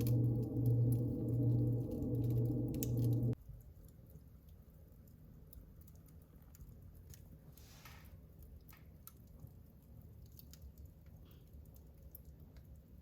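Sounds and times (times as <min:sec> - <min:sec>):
low rumble: 0:00.0 - 0:03.4
wood fire crackling: 0:00.0 - 0:13.0.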